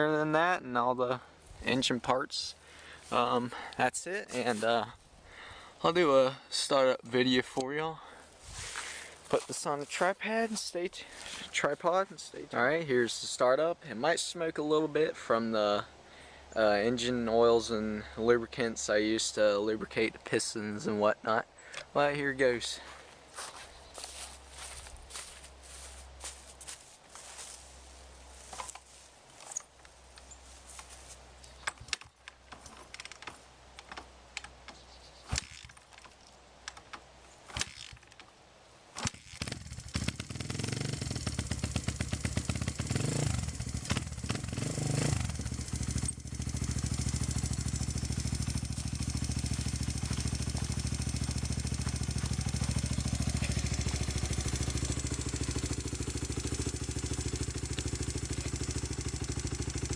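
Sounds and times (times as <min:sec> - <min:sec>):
motorcycle engine revving and idling: 0:02.5 - 0:05.0, 0:08.0 - 0:11.6, 0:22.8 - 0:27.6, 0:39.1 - 0:59.9.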